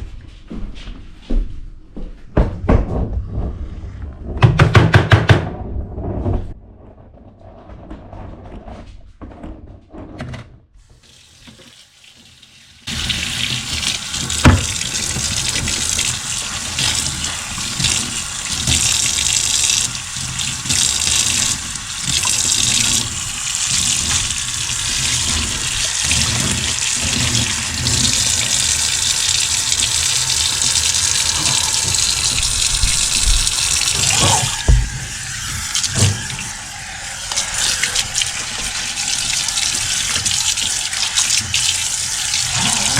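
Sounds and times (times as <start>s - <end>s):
kitchen tap running into sink: 10.8s - 42.9s.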